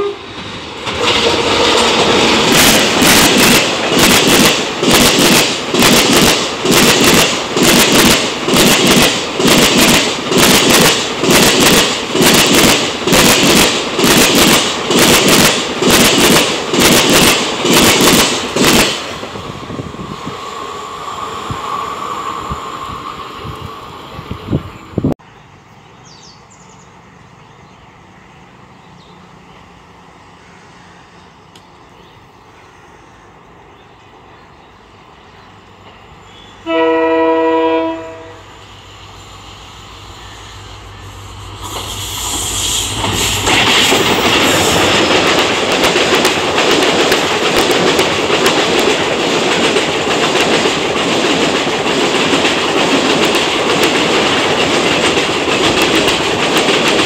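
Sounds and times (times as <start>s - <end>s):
train horn blast: 0.0s - 0.3s, 36.6s - 38.6s
train rushing past: 0.0s - 26.1s, 26.8s - 57.0s
wheels clicking over rail joints: 0.3s - 19.4s, 43.0s - 57.0s.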